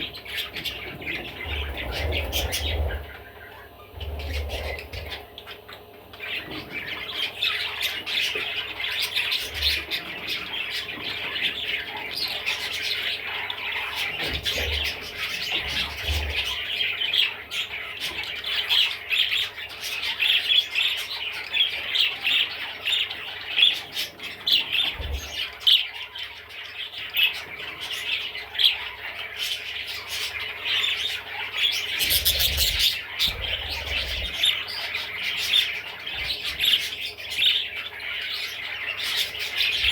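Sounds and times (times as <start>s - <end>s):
budgerigar chattering and warbling: 30.0s - 37.6s.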